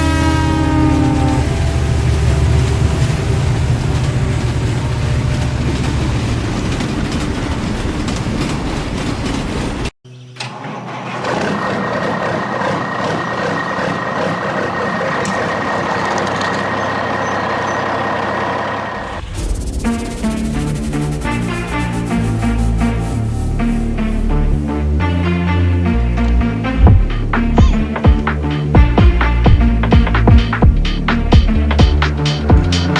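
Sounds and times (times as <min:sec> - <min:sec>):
engine starting and running: 0:01.5 - 0:24.6
low engine rumble: 0:25.9 - 0:32.9.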